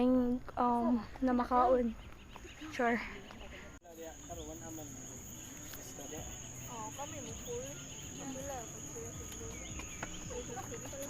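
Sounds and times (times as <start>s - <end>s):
faint voices talking: 0.8s - 11.0s
insects singing high-pitched drone: 3.9s - 11.0s.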